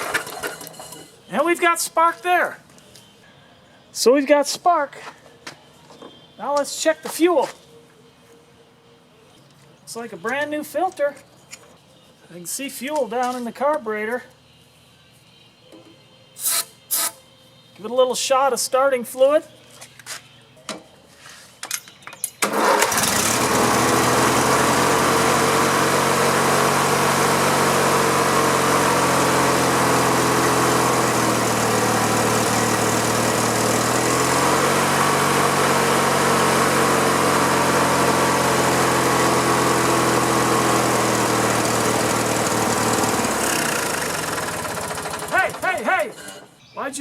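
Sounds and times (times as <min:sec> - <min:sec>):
lawn mower engine running: 0:00.0 - 0:01.1, 0:22.4 - 0:46.5.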